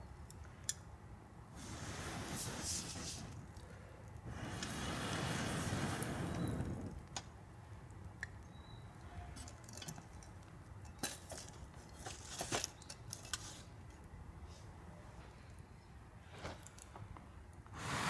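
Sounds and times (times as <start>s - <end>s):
light clicks and clinks: 9.0s - 14.1s.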